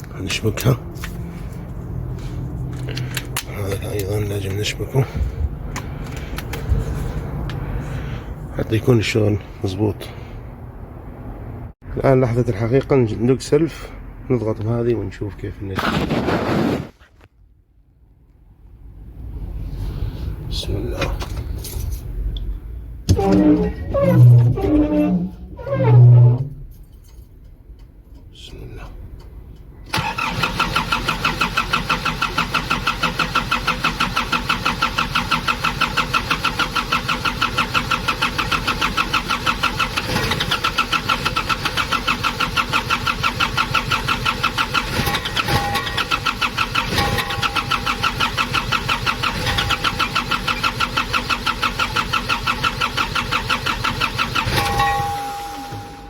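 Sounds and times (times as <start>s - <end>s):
starter motor cranking engine: 29.9s - 55.6s.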